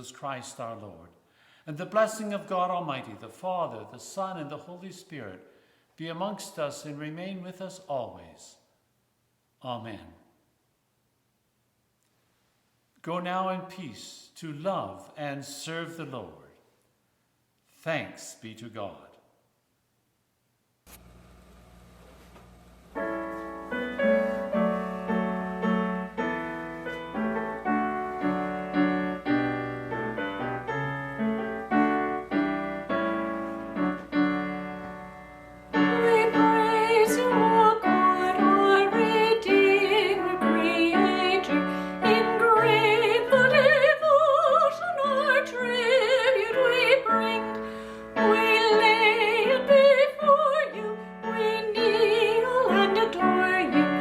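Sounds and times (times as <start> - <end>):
piano chords: 22.5 - 54.0
person singing with vibrato: 35.7 - 54.0.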